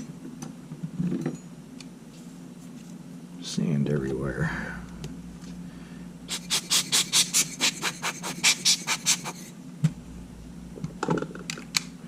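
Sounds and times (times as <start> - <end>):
rubbing strokes on camera body: 6.3 - 9.5.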